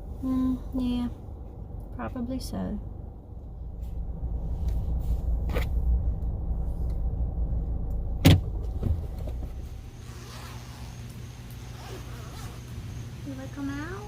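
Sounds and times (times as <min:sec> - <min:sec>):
car engine rumbling: 0:00.0 - 0:14.0
sharp clunk: 0:08.2 - 0:09.5.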